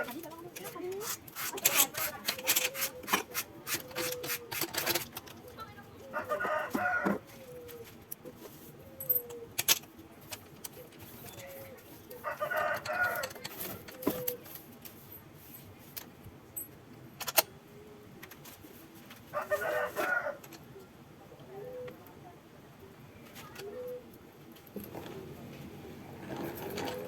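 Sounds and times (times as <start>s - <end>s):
rooster crowing: 6.1s - 7.2s, 12.2s - 13.4s, 19.4s - 20.4s.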